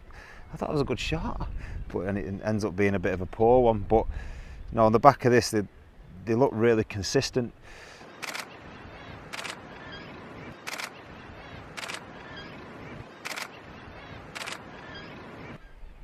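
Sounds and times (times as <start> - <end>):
camera shutter bursts: 8.2 - 8.6, 9.2 - 9.7, 10.6 - 11.0, 11.7 - 12.5, 13.1 - 13.7, 14.3 - 15.0.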